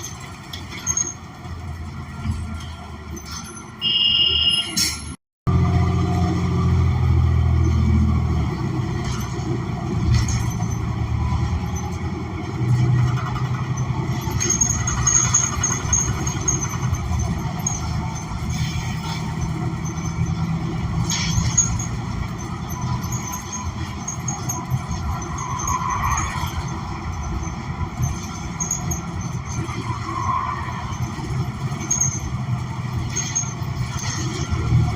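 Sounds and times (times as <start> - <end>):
bus engine running: 0.0 - 34.9
road noise: 0.0 - 34.9
thin high squeal: 14.4 - 32.4.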